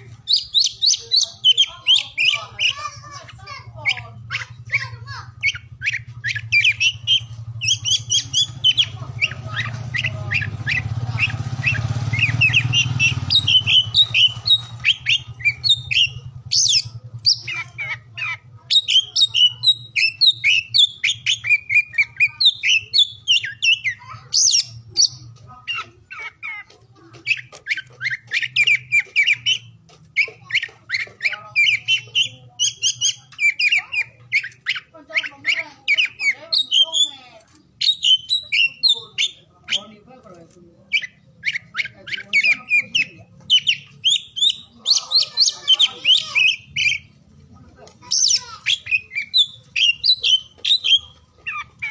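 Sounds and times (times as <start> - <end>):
bird singing chirps and whistles: 0.0 - 18.0, 18.7 - 26.6, 27.2 - 40.0, 40.9 - 47.2, 48.0 - 51.9.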